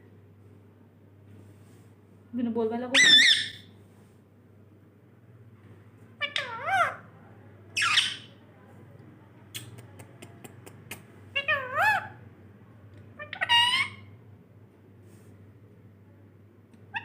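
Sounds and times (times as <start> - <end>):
parrot squawking: 3.0 - 3.7, 6.2 - 7.0, 7.8 - 8.3, 11.3 - 12.2, 13.2 - 14.1.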